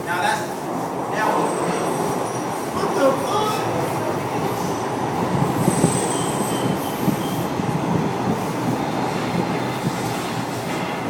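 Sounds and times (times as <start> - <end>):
train rumbling on rails: 0.0 - 11.0
high wheel squeal: 5.6 - 7.6.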